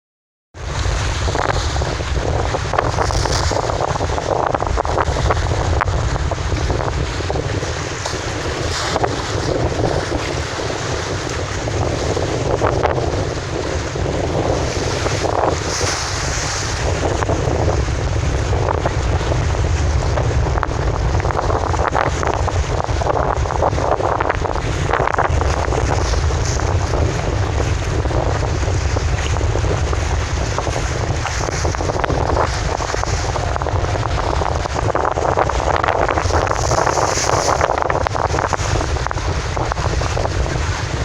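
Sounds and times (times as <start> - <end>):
wind buffeting microphone: 0.5 - 41.0
river waves: 0.6 - 41.0.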